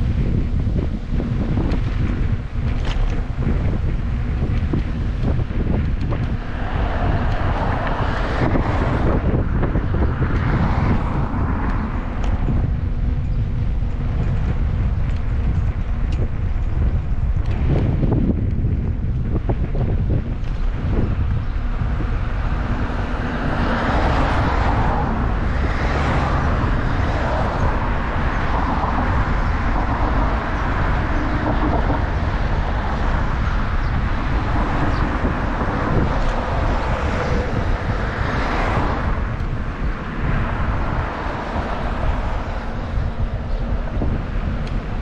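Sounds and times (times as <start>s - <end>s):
passing vehicles hissing: 0.0s - 45.0s
wind rumbling on microphone: 0.0s - 45.0s.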